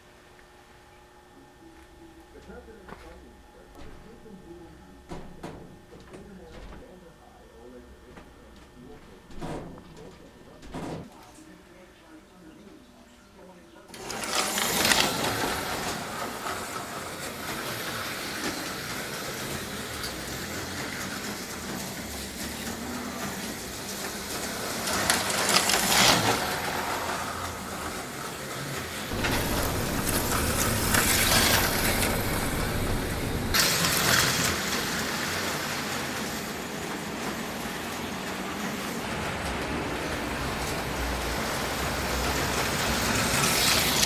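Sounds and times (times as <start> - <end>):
slot car motors whirring: 13.9 - 44.0
low rumble: 29.1 - 33.6.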